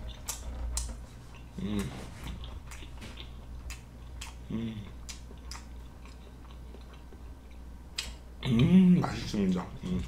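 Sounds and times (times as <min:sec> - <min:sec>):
person chewing: 0:00.0 - 0:08.8
steady low hum: 0:00.0 - 0:10.0
person humming mm: 0:01.6 - 0:02.2, 0:04.4 - 0:05.0.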